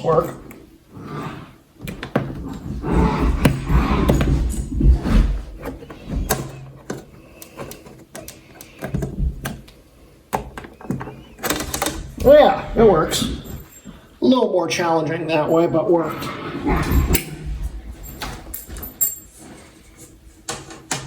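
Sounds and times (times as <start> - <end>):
rubbing and low thumps: 1.8 - 6.6, 11.7 - 14.0, 16.5 - 19.0.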